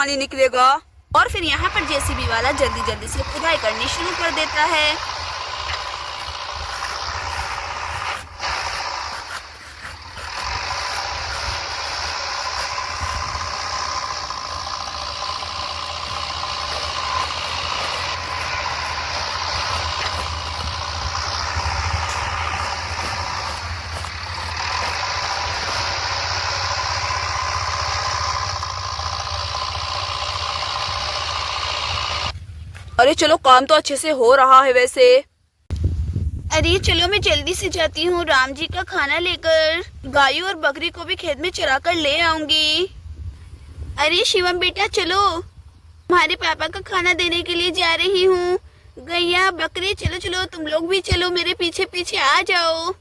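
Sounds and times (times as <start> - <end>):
backhoe engine droning: 0.0 - 33.3.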